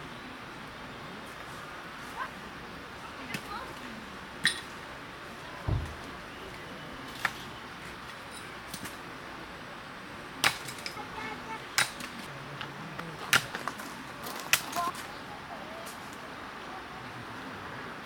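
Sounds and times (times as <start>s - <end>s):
low thump: 5.6s - 6.2s.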